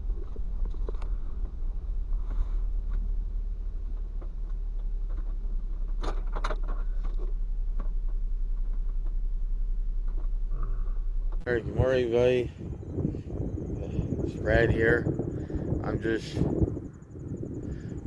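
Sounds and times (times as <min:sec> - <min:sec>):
handling clicks and rustles: 0:00.0 - 0:11.5
vehicle engine idling: 0:00.0 - 0:18.0.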